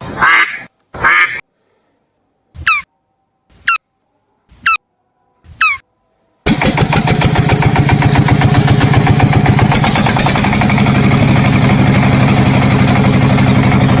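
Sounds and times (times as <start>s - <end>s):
tractor engine idling: 6.5s - 14.0s.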